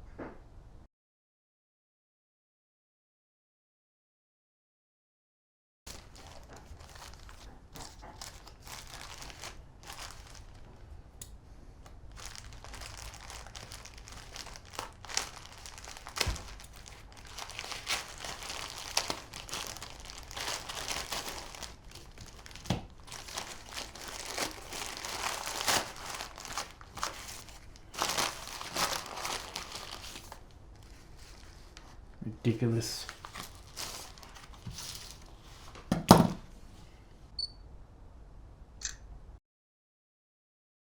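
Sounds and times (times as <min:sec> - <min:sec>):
packaging tearing: 0:05.9 - 0:10.9, 0:11.8 - 0:31.9, 0:32.8 - 0:35.7
packaging crinkling and crumpling: 0:05.9 - 0:35.9.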